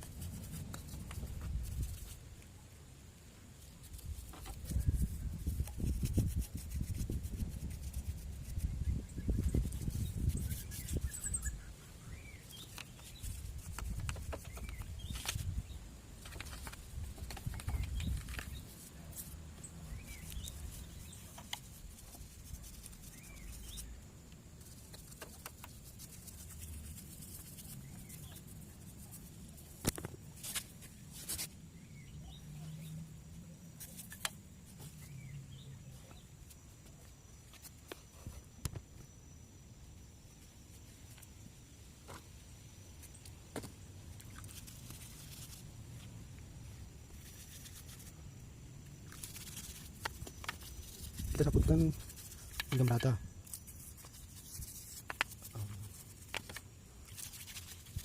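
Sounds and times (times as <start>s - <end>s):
paintbrush rubbing on metal: 0.0s - 2.2s, 3.6s - 11.6s, 12.3s - 15.5s, 20.0s - 23.9s, 24.6s - 29.8s, 44.3s - 45.7s, 47.1s - 48.2s, 49.1s - 58.0s.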